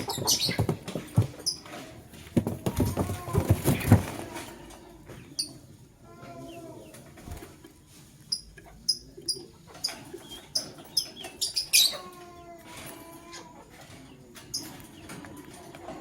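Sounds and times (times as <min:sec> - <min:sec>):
lovebirds chirping: 0:00.0 - 0:01.8, 0:08.3 - 0:12.1
soft low bird chatter: 0:00.0 - 0:16.0.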